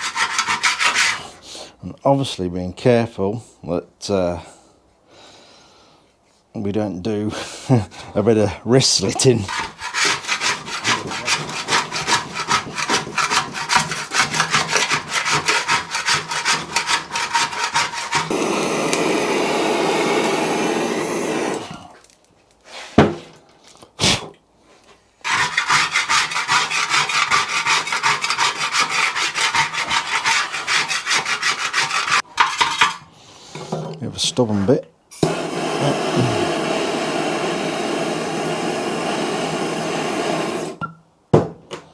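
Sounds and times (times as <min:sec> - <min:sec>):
scraper scraping metal tank: 0:00.0 - 0:01.4, 0:09.2 - 0:21.9, 0:25.2 - 0:33.1
steady hiss: 0:35.1 - 0:40.8.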